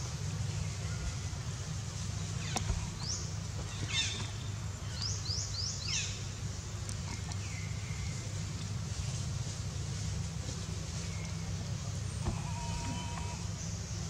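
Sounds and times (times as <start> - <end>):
steady low hum: 0.0 - 14.0
birds chirping: 0.2 - 14.0.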